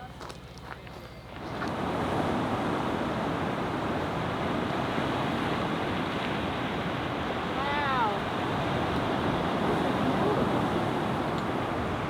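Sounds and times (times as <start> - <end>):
surf rushing along a shore: 1.5 - 12.0.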